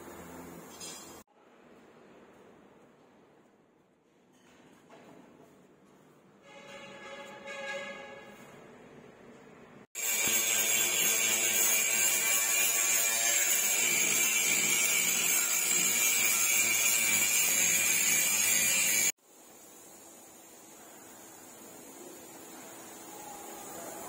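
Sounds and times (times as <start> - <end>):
high-pitched power tool whining: 10.0 - 19.2.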